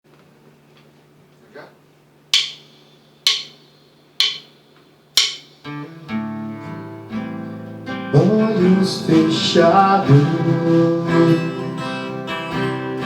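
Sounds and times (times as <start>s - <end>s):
sharp count-in clicks: 2.4s - 5.8s
acoustic guitar playing chords: 5.2s - 13.0s.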